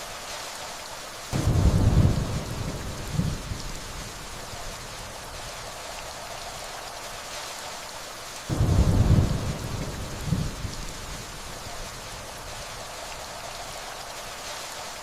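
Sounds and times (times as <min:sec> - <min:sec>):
steady rainfall: 0:00.0 - 0:15.0
thunder rumbling: 0:01.4 - 0:06.6, 0:08.5 - 0:13.9.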